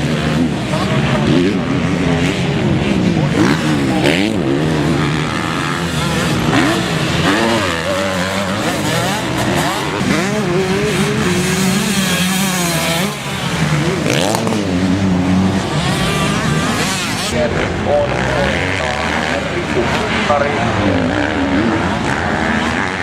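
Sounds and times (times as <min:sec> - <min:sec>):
motocross bike engines revving: 0:00.0 - 0:23.0.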